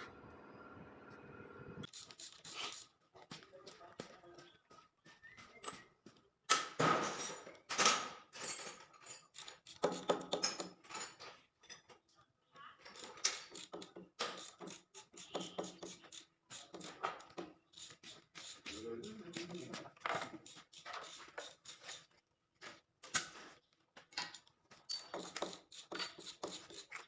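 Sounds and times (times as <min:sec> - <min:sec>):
tools and metal parts clinking: 0:06.9 - 0:12.1, 0:24.0 - 0:27.0.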